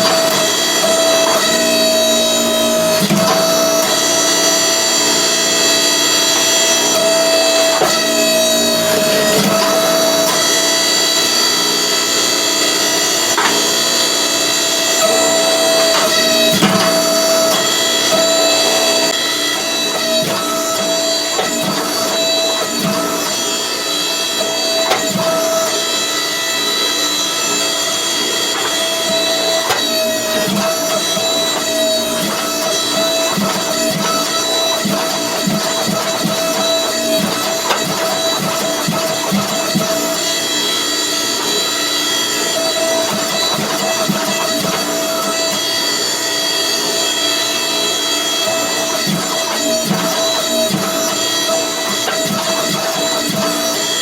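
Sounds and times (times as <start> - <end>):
hydraulic press motor and pump whine: 0.0 - 54.0.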